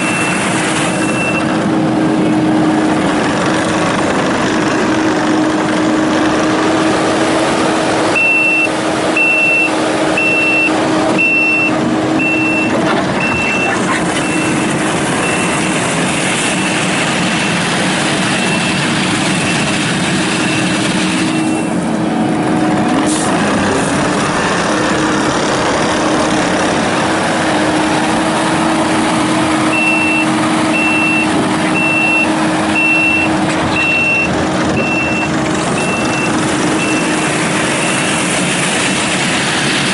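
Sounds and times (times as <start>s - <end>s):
diesel engine under load: 0.0s - 39.9s
backup alarm beeping: 1.0s - 1.5s, 8.2s - 15.7s, 20.5s - 21.7s, 29.7s - 38.1s.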